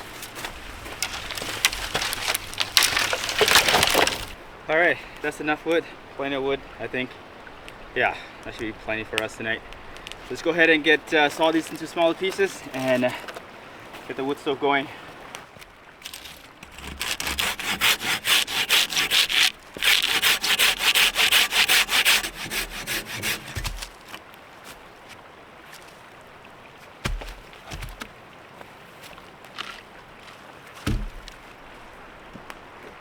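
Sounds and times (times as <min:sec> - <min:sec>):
dull thumps: 0:00.0 - 0:04.4, 0:16.1 - 0:24.2, 0:27.0 - 0:28.1, 0:30.8 - 0:31.5
hand saw cutting log: 0:00.0 - 0:04.4, 0:12.3 - 0:13.4, 0:16.0 - 0:24.2, 0:27.0 - 0:28.1, 0:30.8 - 0:31.4.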